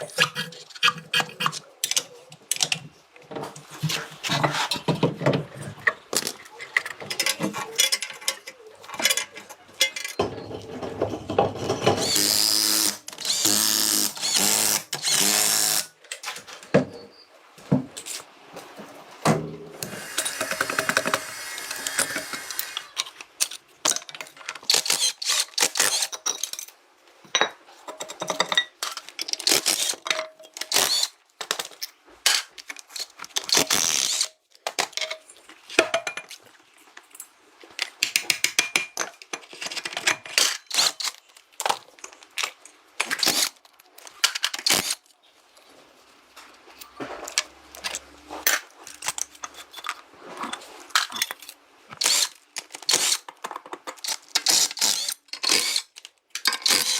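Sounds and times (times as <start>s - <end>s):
hand tool clicks and clanks: 5.8s - 10.2s, 19.8s - 26.7s, 51.0s - 56.9s
power tool running: 12.0s - 15.9s.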